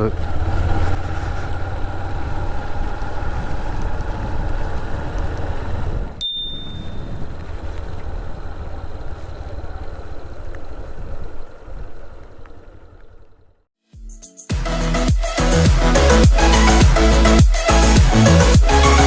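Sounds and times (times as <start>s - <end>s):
motorcycle low rumble: 0.0s - 13.7s
short high ding: 6.2s - 7.2s.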